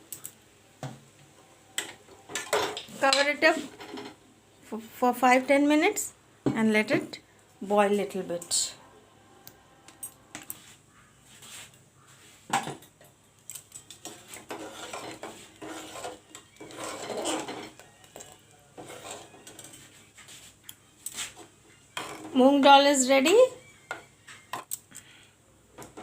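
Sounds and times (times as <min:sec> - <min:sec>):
spoon scraping cooking pot: 0:13.8 - 0:22.4.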